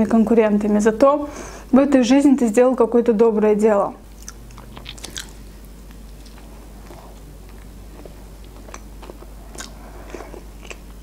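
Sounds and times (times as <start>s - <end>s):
person chewing: 4.1s - 11.0s
wet mouth clicks and smacks: 4.2s - 5.3s.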